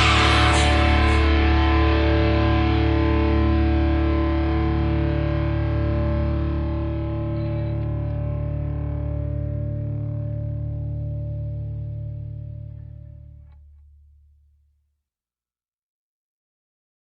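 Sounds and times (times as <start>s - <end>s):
distorted electric guitar chord: 0.0s - 13.6s.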